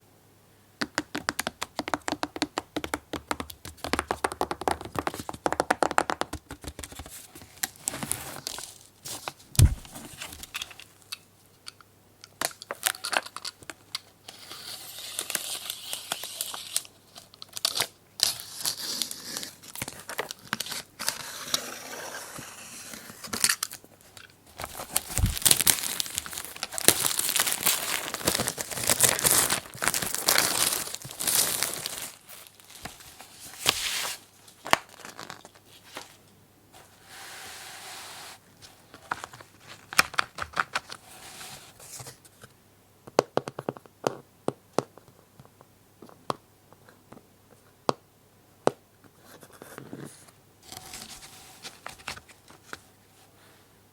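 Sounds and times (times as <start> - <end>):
plastic wrap crinkling and tearing: 24.5 - 35.6.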